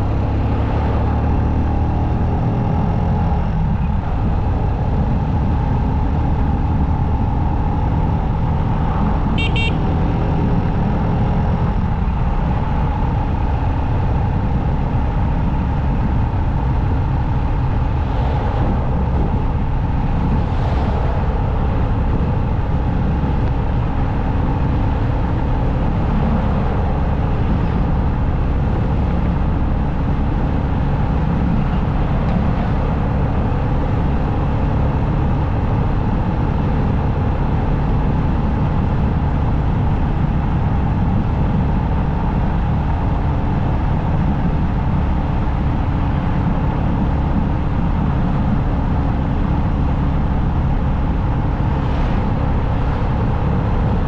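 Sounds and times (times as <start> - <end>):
wind and road noise: 0.0 - 54.0
motorcycle engine running: 4.2 - 9.8.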